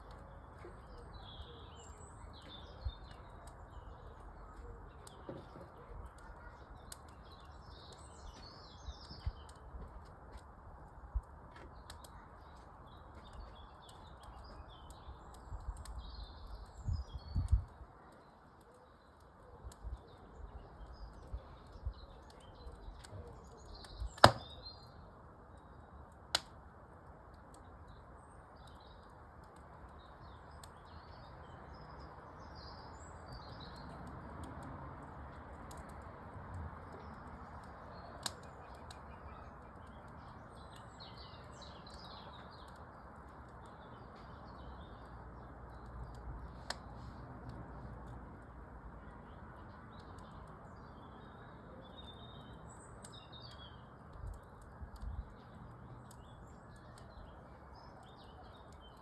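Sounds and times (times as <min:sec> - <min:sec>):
birds chirping: 0:00.0 - 0:10.0, 0:11.6 - 0:26.2, 0:36.8 - 0:47.2, 0:49.0 - 0:59.0
wood fire hissing and popping: 0:00.0 - 0:59.0.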